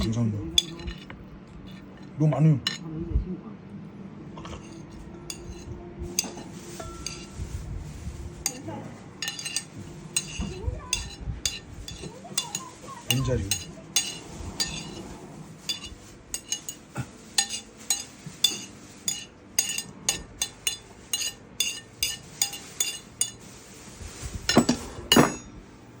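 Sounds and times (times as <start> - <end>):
metal spoon clinking on bowl: 0.6 - 2.1, 4.6 - 5.6, 6.2 - 7.4, 9.2 - 15.0, 15.7 - 16.8, 17.4 - 23.4, 24.5 - 25.6.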